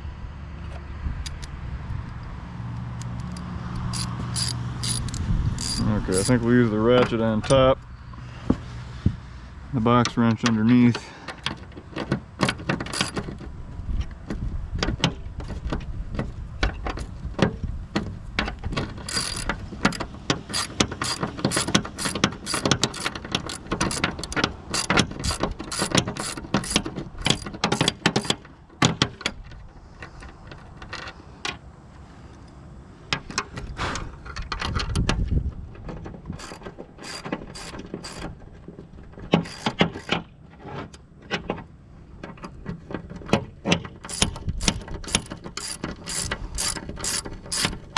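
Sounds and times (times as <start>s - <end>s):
ratchet wrench clicking: 3.0s - 6.4s, 12.9s - 13.2s, 19.0s - 28.4s, 36.4s - 38.3s, 39.4s - 40.2s, 44.0s - 47.9s.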